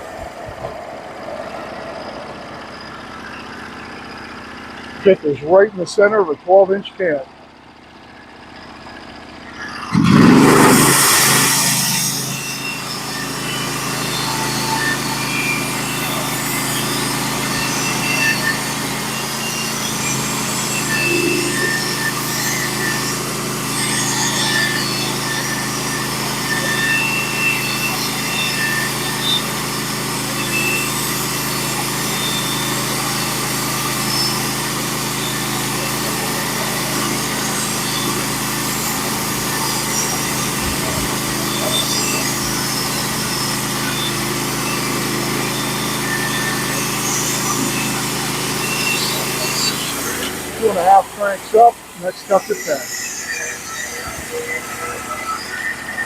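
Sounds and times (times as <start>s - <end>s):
sawmill engine revving: 0.0s - 56.0s.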